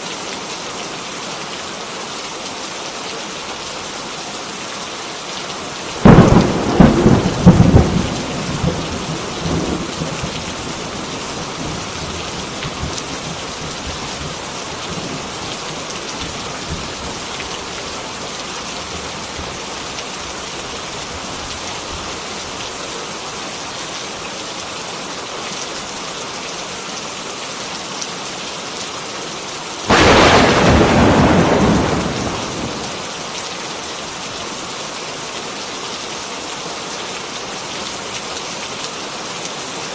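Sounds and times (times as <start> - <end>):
heavy rain falling: 0.0 - 39.9
thunder claps: 6.0 - 10.4, 29.9 - 33.1.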